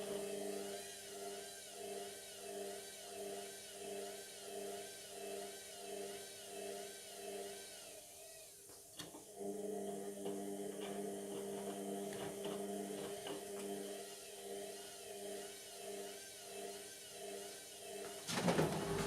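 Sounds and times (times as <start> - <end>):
washing machine motor hum: 0.0 - 8.4, 9.0 - 19.0
washing machine drum swishing: 18.2 - 19.0.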